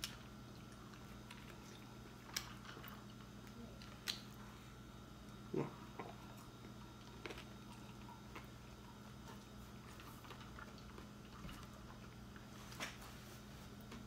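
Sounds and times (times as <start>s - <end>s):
chewing and mouth clicks: 0.0s - 4.5s, 5.2s - 13.0s
faint steady hum: 0.0s - 14.0s.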